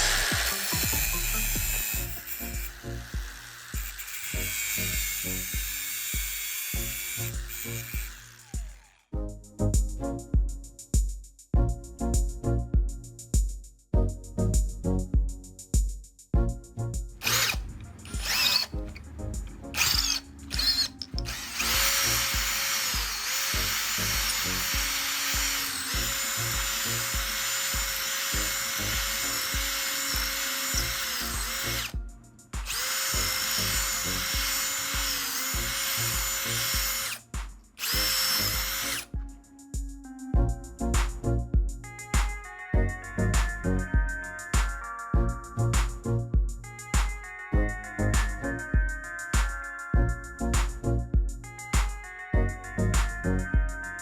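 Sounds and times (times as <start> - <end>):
power drill running: 0.0 - 9.0, 17.2 - 19.0, 19.7 - 32.0, 32.6 - 37.2, 37.8 - 39.1
background music with steady beat: 0.0 - 54.0.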